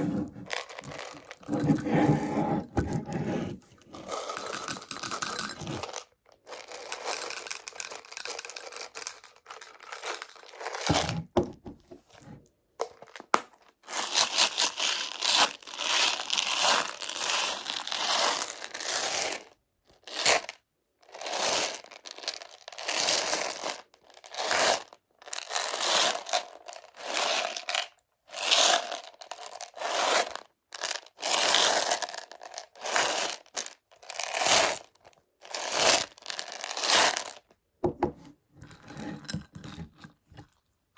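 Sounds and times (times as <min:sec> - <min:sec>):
rough scraping strokes: 0:00.0 - 0:04.1.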